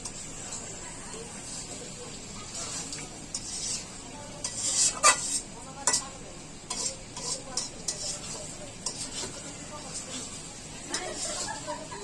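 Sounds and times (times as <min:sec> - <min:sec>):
spoon scraping a pan: 0:00.0 - 0:00.7, 0:01.4 - 0:11.7
curry sizzling: 0:00.0 - 0:12.0.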